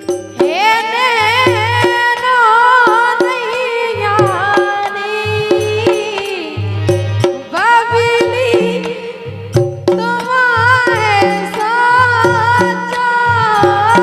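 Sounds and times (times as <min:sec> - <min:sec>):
drum strokes: 0:00.0 - 0:14.0.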